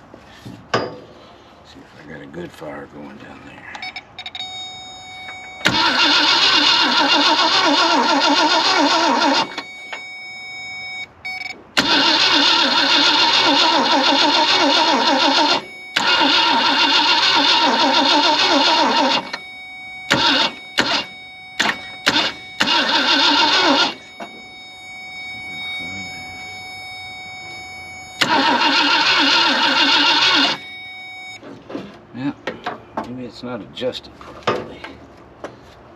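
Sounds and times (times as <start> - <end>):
car starter cranking: 5.3 - 10.1, 11.8 - 24.6, 27.6 - 30.7.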